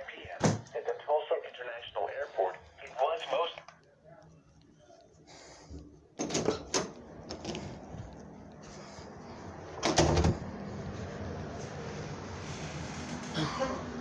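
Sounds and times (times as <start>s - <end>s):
door clattering open: 6.2s - 7.7s, 9.8s - 10.5s.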